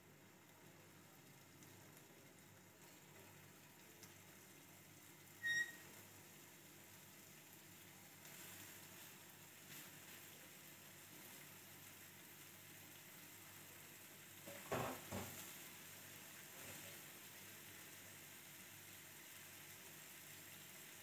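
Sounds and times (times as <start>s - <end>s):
meat sizzling in a pan: 0.0s - 21.0s
short high beep: 5.4s - 5.8s.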